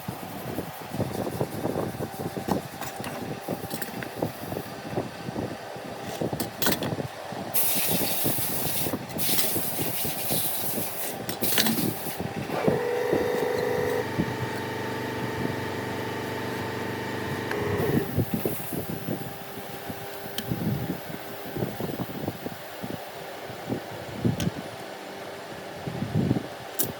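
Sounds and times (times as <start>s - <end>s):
hissing air bursts: 7.5s - 13.2s
machine humming: 11.8s - 18.4s.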